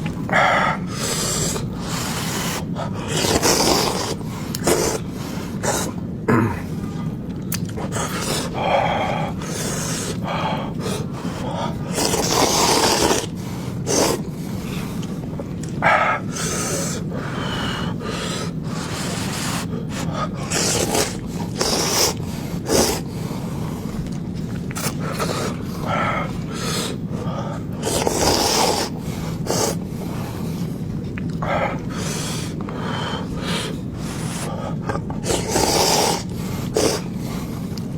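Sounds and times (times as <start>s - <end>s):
person chewing and slurping: 0.0s - 6.0s, 6.7s - 15.8s, 18.5s - 25.7s, 27.7s - 30.0s.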